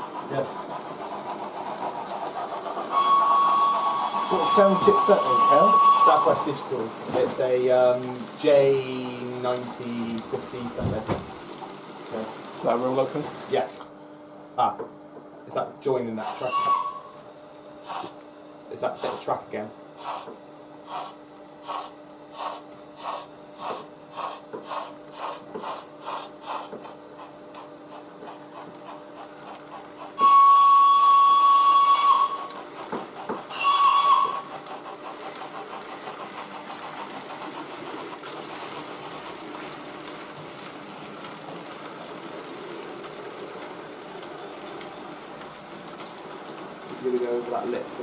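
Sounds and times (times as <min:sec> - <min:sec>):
steam locomotive exhaust chuffs: 0:00.0 - 0:10.8, 0:17.8 - 0:47.8
locomotive whistle blast: 0:02.9 - 0:06.6, 0:16.4 - 0:17.2, 0:30.2 - 0:32.6, 0:33.5 - 0:34.5.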